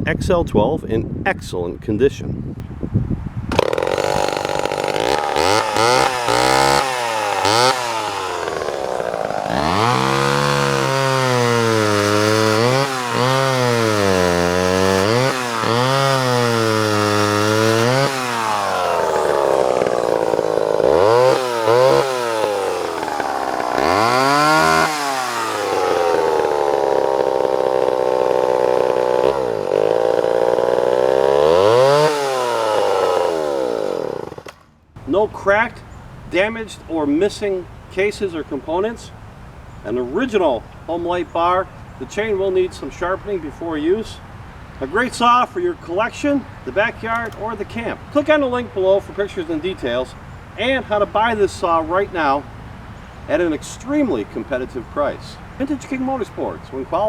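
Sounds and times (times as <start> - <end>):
chainsaw engine revving: 3.5 - 35.1.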